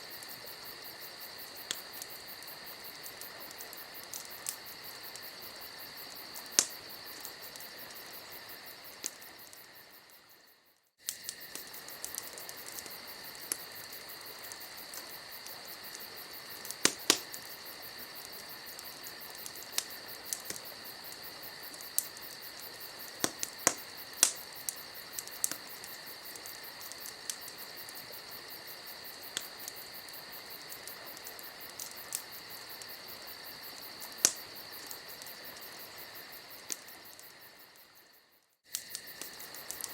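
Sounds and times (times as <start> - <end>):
campfire crackling: 0.0 - 39.9
insects chorus: 0.0 - 39.9.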